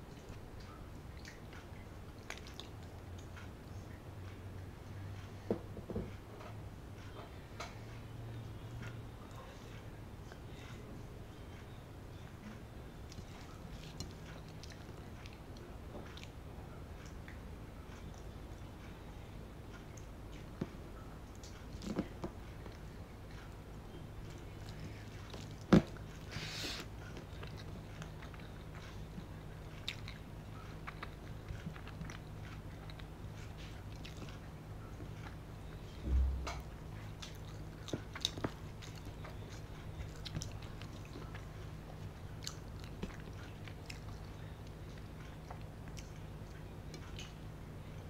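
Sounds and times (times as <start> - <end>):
low steady hum: 0.0 - 48.0
soft chewing: 0.0 - 48.0
dull low thump: 36.0 - 36.7.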